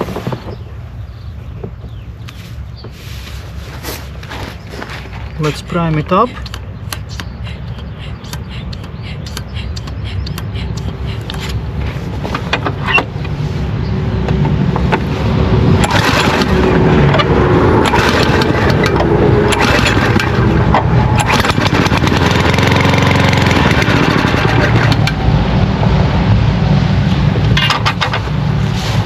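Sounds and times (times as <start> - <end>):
small petrol engine starting: 14.3 - 25.4.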